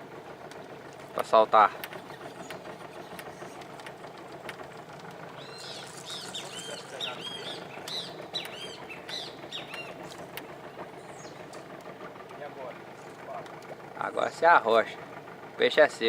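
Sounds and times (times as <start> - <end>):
low engine hum: 0.0 - 16.0
birds chirping: 0.4 - 12.2.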